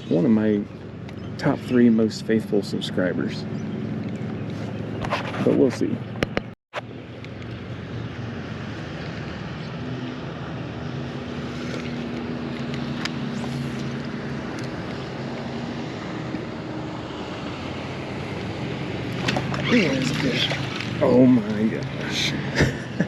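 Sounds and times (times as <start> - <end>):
jet ski engine droning: 0.0 - 23.0
wind: 0.0 - 23.0
water lapping: 19.0 - 22.3.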